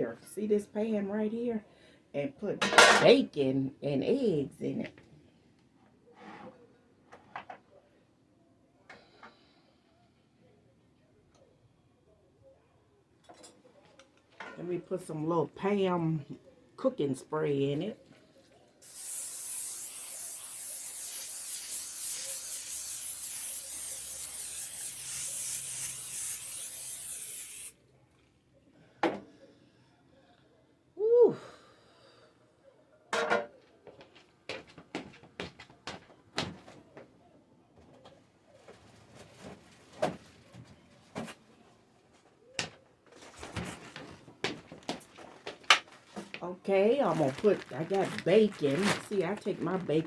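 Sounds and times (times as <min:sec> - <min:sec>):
aerosol cooking spray hissing: 0:18.8 - 0:27.8.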